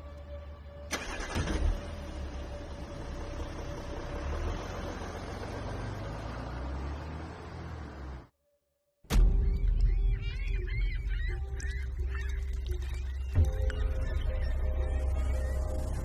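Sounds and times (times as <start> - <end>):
road rumble: 0.0 - 8.4
vehicle engine: 0.0 - 8.4.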